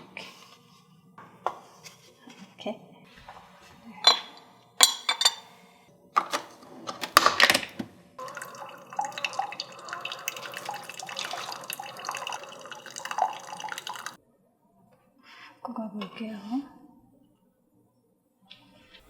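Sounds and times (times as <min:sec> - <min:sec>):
kitchenware clinking: 0:04.0 - 0:05.6, 0:06.2 - 0:14.2
liquid trickling and dripping: 0:08.2 - 0:14.2.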